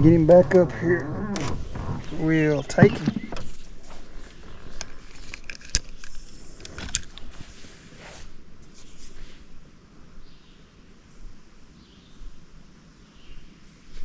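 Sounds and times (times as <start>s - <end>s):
fishing gear clicks and rattles: 0.0s - 7.5s
rustling: 0.0s - 9.7s.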